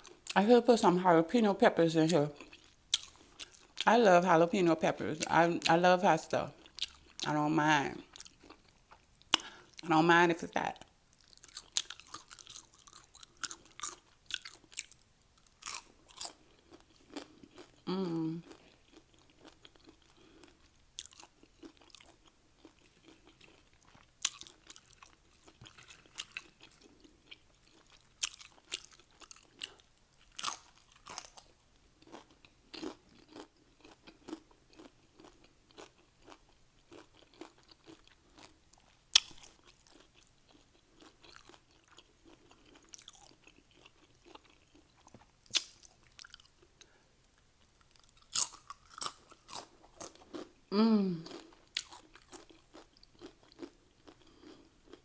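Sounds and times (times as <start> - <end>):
chewing: 2.4 - 3.8, 6.5 - 7.3, 8.0 - 9.8, 11.1 - 47.0, 47.6 - 50.6, 51.2 - 55.0
crunching tortilla chips: 11.1 - 47.0, 47.6 - 50.6, 51.2 - 55.0.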